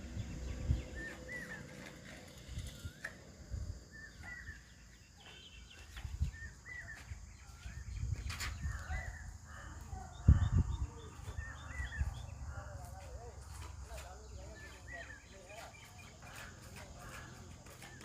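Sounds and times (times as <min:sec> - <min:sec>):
bird whistled call: 0:00.8 - 0:03.2.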